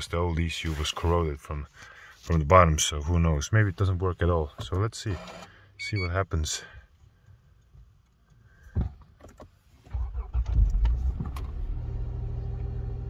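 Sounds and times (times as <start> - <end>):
car engine cranking and idling: 9.2 - 13.0.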